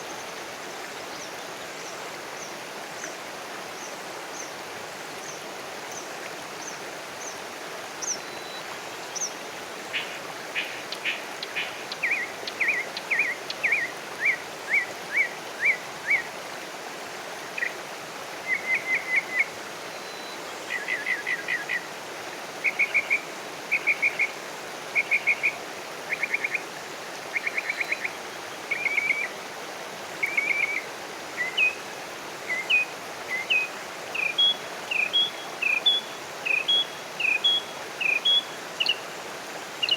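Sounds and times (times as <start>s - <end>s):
background hiss: 0.0s - 39.9s.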